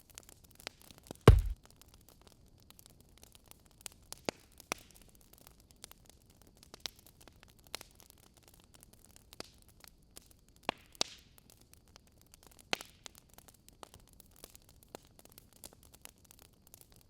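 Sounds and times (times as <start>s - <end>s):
wood fire crackling: 1.3s - 1.6s.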